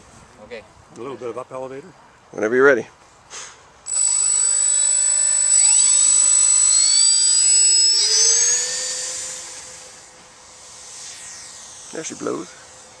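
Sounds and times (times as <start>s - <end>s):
model plane motor whine: 3.9s - 13.0s.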